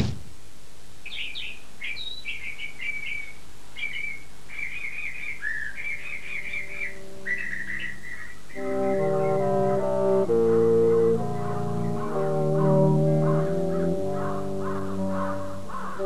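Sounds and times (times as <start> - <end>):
songbird singing: 1.0 - 16.0
faint low held notes: 6.4 - 16.0.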